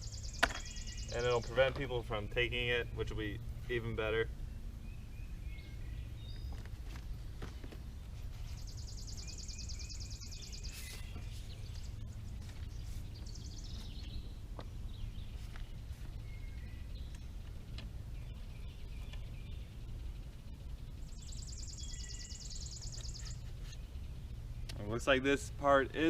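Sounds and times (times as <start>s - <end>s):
bird trilling and chirping: 0.0s - 3.0s, 8.2s - 24.8s
low background rumble: 0.0s - 26.0s.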